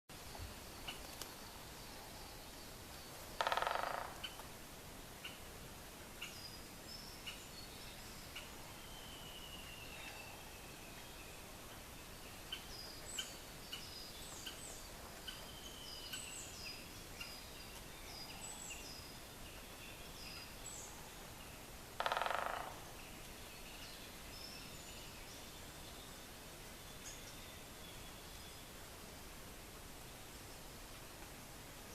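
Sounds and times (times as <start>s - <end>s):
songbirds calling: 0.1s - 29.0s
woodpecker drumming on wood: 3.4s - 4.5s, 22.0s - 22.9s.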